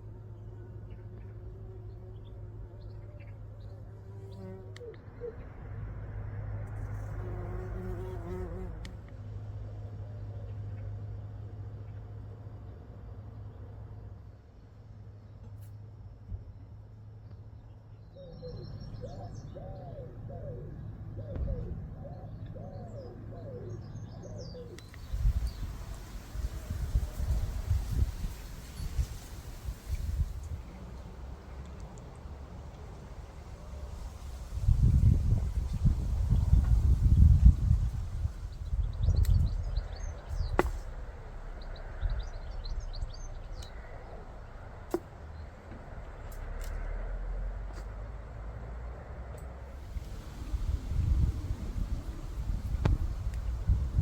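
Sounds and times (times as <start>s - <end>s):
small birds chirping: 17.2s - 29.3s, 37.4s - 44.6s
dove cooing: 18.5s - 24.8s
wind rumble on microphone: 24.4s - 46.2s, 48.6s - 54.0s.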